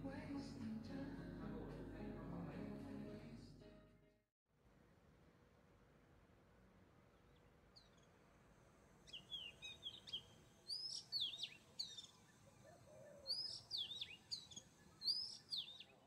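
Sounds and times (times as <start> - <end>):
songbird chirping and whistling: 9.1 - 16.0.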